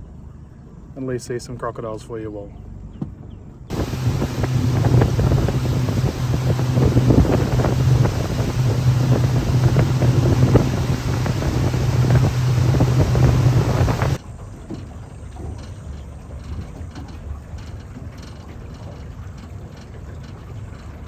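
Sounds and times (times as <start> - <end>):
outboard motor humming: 3.7 - 14.2
wind buffeting microphone: 3.7 - 14.2.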